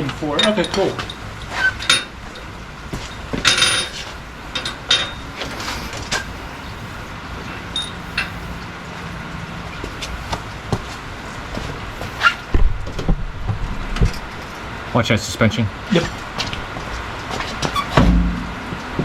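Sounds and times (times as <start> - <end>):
metallic knocks of tools and parts: 0.0 - 1.2, 1.8 - 4.0, 17.9 - 19.0
low steady hum: 17.9 - 19.0.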